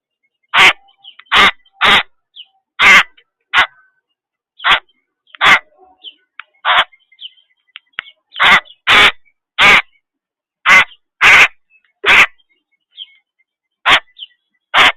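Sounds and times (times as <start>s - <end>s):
harsh animal calls: 4.6s - 7.0s, 8.3s - 10.0s.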